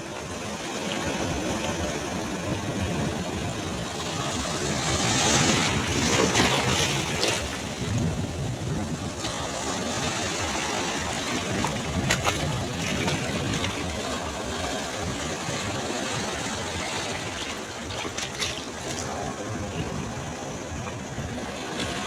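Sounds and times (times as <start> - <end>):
sea waves washing onto beach: 0.0 - 22.0.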